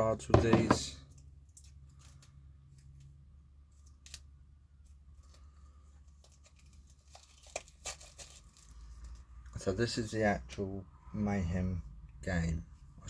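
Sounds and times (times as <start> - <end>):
cards and packaging handled: 0.7 - 9.3
small clicks and rustles: 1.1 - 9.6.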